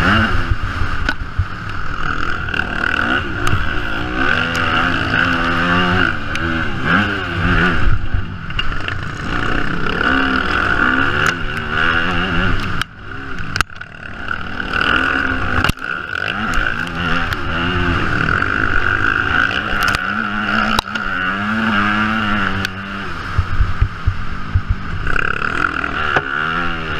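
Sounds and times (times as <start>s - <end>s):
motocross bike engine revving: 0.0s - 26.9s
wind rush: 21.3s - 25.2s.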